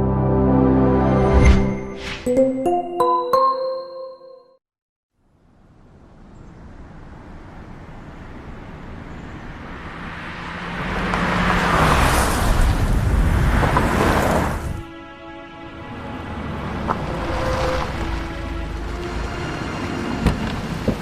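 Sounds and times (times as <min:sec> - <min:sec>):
rushing road noise: 0:05.5 - 0:21.0
vehicle engine: 0:15.8 - 0:21.0.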